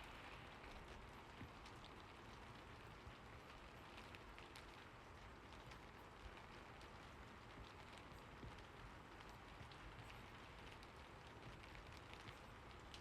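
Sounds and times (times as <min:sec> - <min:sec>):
faint steady rain: 0:00.0 - 0:13.0.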